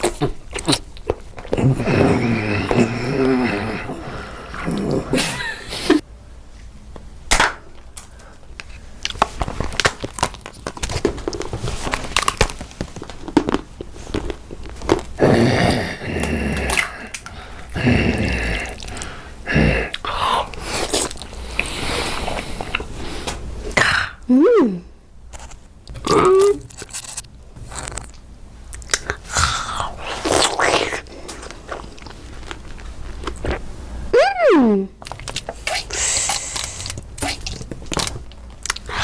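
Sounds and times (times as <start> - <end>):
chewing and crunching food: 0.0 - 5.0, 7.8 - 17.8, 19.9 - 22.9, 25.4 - 33.6, 35.0 - 39.0.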